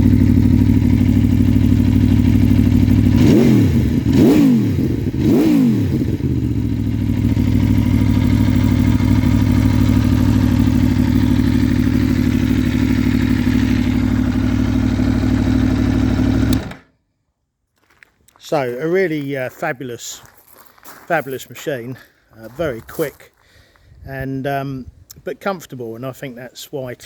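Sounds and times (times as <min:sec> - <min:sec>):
motorcycle engine idling and revving: 0:00.0 - 0:16.9.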